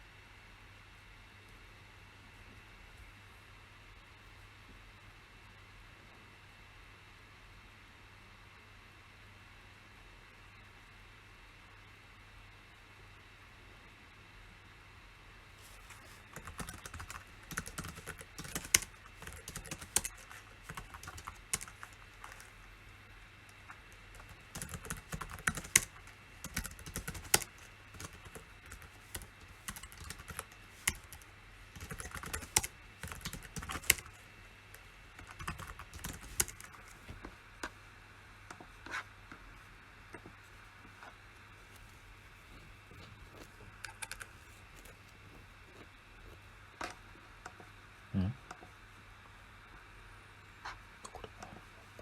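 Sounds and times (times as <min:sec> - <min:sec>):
computer keyboard typing: 0:15.7 - 0:22.6, 0:23.5 - 0:37.1, 0:43.2 - 0:45.0.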